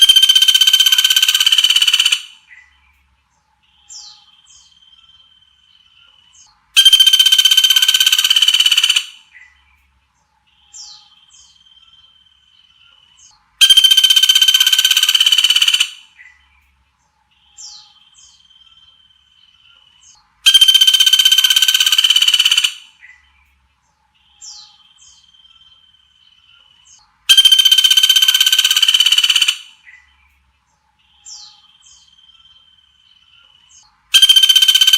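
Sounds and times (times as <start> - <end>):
songbird harsh trill: 0.0 - 3.0, 3.6 - 9.8, 10.5 - 34.9
bird down-slurred whistles: 34.1 - 34.9.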